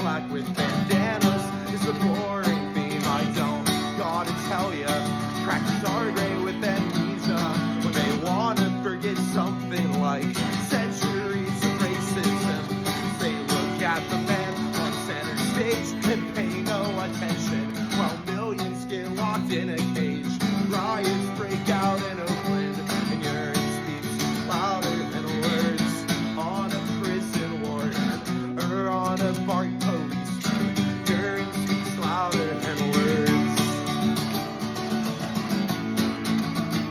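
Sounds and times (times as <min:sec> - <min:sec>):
acoustic guitar strumming: 0:00.0 - 0:36.9
person singing: 0:00.0 - 0:36.9.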